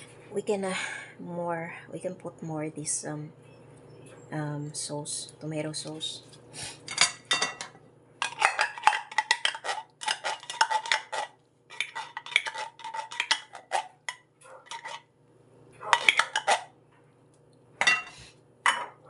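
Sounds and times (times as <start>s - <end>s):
spoon scraping a cooking pot: 8.2s - 15.1s, 15.8s - 16.7s.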